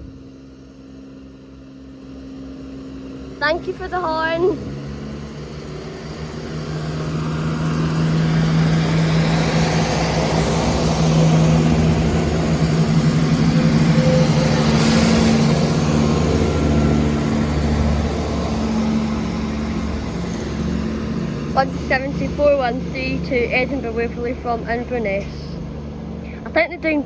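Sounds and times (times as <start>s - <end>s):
train diesel engines running: 0.0s - 27.0s.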